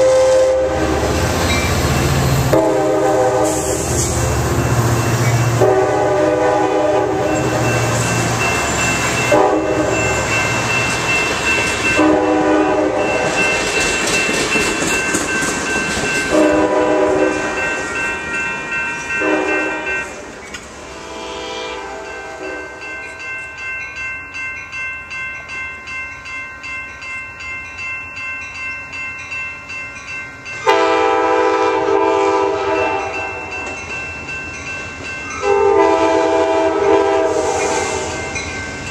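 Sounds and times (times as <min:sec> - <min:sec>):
locomotive air horn blasts: 0:00.0 - 0:01.2, 0:02.5 - 0:04.1, 0:05.6 - 0:07.4, 0:09.3 - 0:10.0, 0:12.0 - 0:13.1, 0:16.3 - 0:17.6, 0:19.2 - 0:20.2, 0:20.9 - 0:22.8, 0:30.7 - 0:33.3, 0:35.4 - 0:38.2
train wheels clacking on rail joints: 0:13.0 - 0:18.0.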